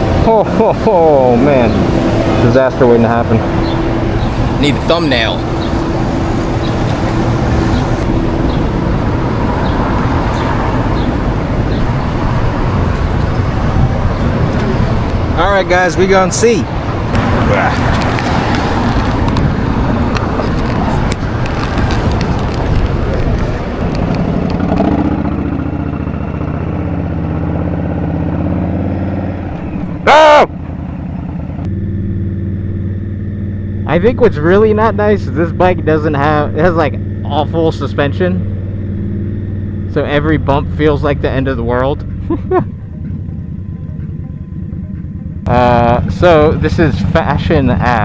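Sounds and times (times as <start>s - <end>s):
city traffic rumble: 0.0s - 48.0s
motorcycle engine running: 0.0s - 48.0s
loud tonal horn blast: 1.7s - 10.7s.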